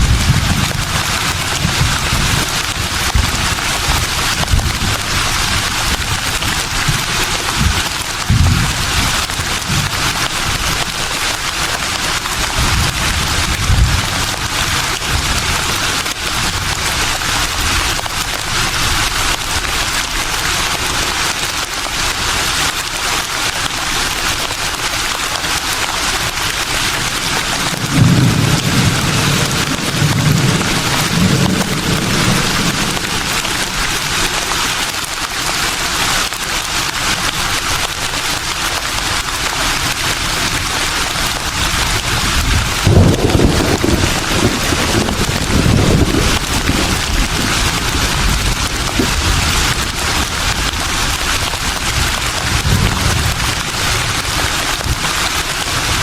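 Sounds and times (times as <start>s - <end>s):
low wind rumbles: 0.0s - 6.3s, 27.3s - 34.7s, 41.8s - 54.2s
leaves rustling in breeze: 25.5s - 56.0s.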